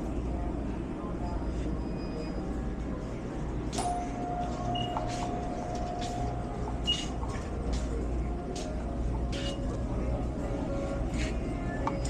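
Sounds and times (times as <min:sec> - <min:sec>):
faint murmur of voices: 0:00.0 - 0:12.0
held electronic beep: 0:03.8 - 0:05.3.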